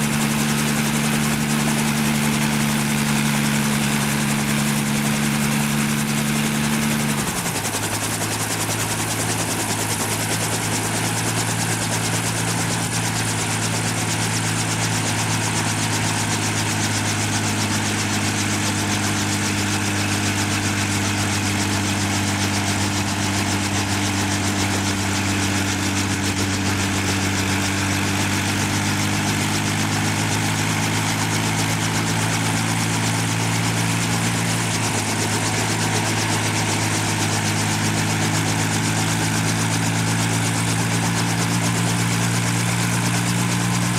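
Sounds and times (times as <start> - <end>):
constant rushing noise: 0.0 - 43.9.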